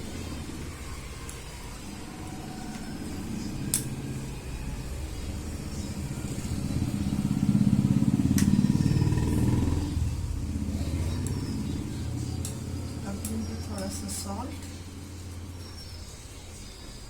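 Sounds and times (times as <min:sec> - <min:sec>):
engine low rumble: 0:00.0 - 0:17.0.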